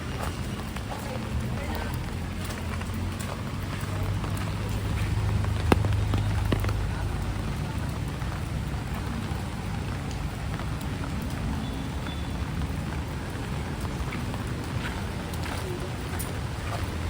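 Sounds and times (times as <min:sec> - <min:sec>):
heavy rain falling: 0:00.0 - 0:17.0
sharp tap: 0:05.6 - 0:06.8.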